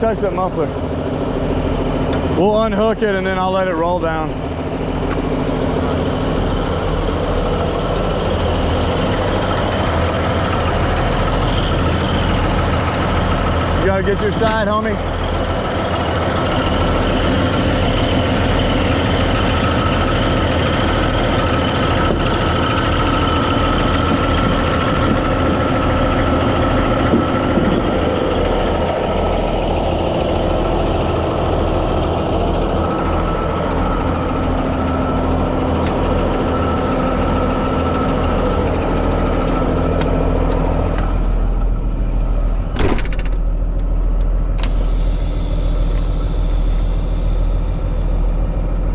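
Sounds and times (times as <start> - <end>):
truck engine idling: 0.0 - 48.9
sharp knock: 42.8 - 43.4.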